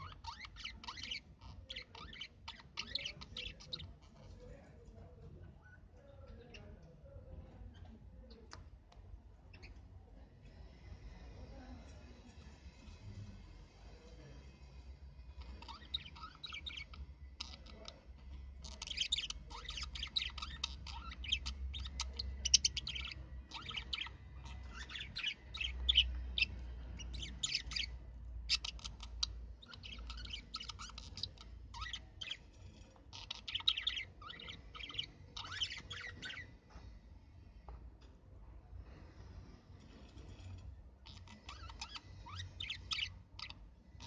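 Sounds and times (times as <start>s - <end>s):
budgerigars chattering: 0.0s - 4.1s, 15.4s - 36.9s, 41.0s - 44.0s.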